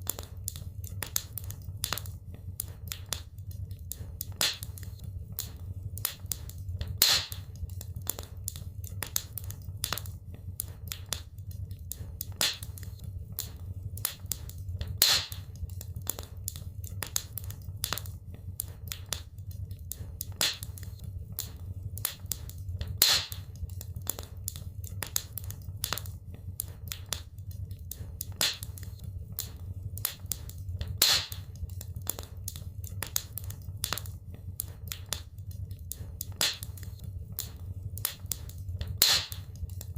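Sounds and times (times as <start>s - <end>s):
wood fire crackling: 0.0s - 39.9s
sharp fire pop: 7.0s - 7.4s, 15.0s - 15.4s, 23.0s - 23.4s, 31.0s - 31.4s, 36.4s - 36.7s, 39.0s - 39.4s.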